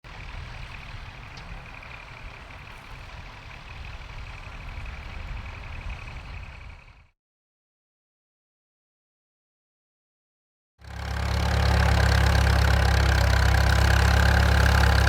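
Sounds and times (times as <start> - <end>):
tractor engine running: 0.0 - 7.1, 10.8 - 15.0.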